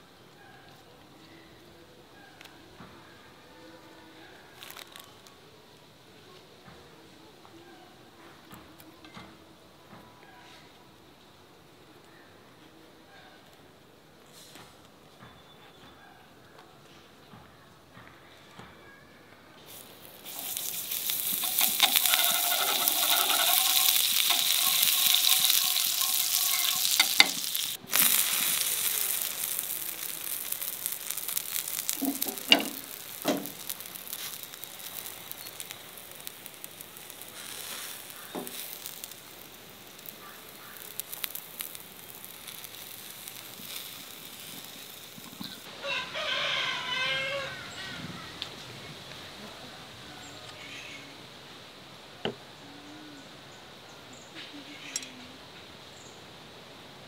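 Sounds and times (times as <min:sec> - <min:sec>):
burger sizzling in a pan: 0:04.6 - 0:05.0, 0:19.7 - 0:47.7.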